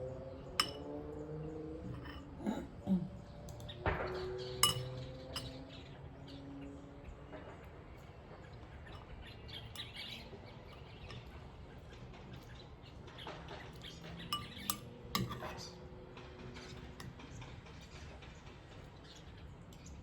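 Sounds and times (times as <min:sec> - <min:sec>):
wild birds chirping: 0:00.0 - 0:20.0
single clink: 0:04.6 - 0:05.5.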